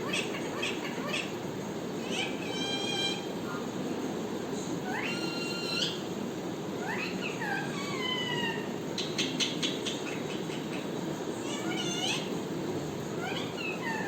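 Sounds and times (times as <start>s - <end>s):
parrot calling: 0.0s - 1.4s, 2.0s - 3.3s, 4.8s - 6.1s, 6.8s - 12.4s, 13.2s - 14.0s.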